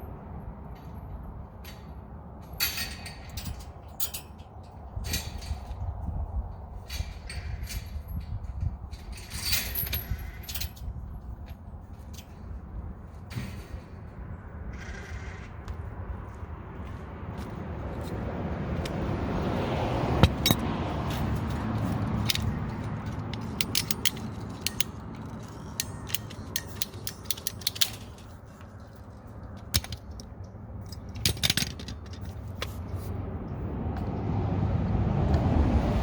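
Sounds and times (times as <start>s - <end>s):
sharp mechanical clicks: 22.2s - 28.2s.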